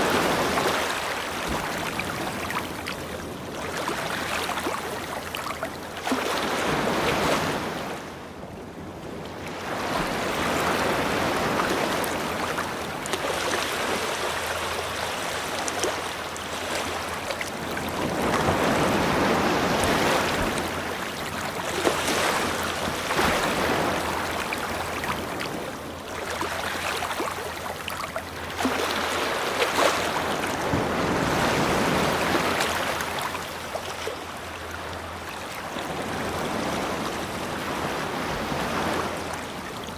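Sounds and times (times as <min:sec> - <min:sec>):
ocean surf breaking: 0:17.6 - 0:25.6, 0:28.8 - 0:33.1.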